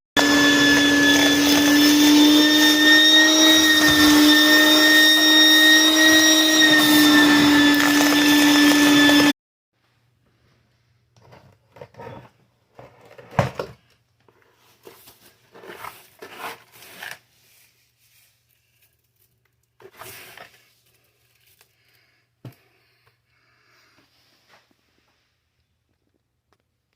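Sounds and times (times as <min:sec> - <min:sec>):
rustling and scraping handling noises: 0:10.3 - 0:22.8.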